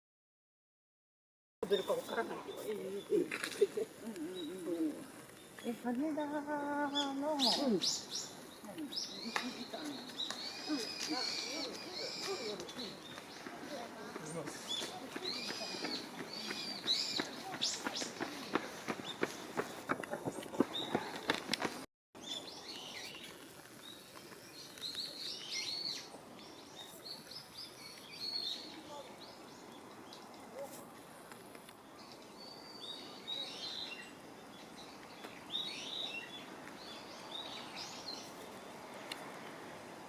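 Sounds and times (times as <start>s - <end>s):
background hiss: 1.6s - 19.6s
small birds chirping: 1.6s - 40.0s
footsteps or rustling: 8.6s - 21.8s.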